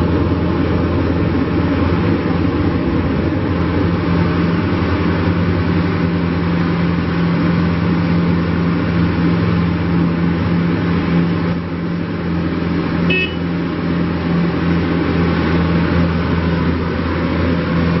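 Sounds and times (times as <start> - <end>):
diesel engine running: 0.0 - 18.0
short high beep: 13.1 - 13.5.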